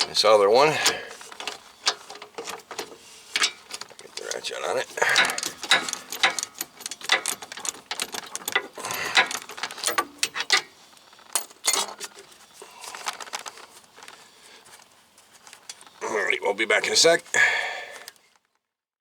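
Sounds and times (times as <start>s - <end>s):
ratchet wrench clicking: 5.1s - 10.6s.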